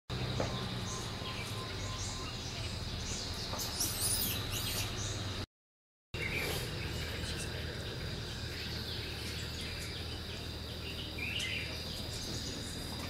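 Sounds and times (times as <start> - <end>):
birds chirping and twittering: 0.1 - 5.5, 6.2 - 13.0
steady high hum: 6.2 - 13.0.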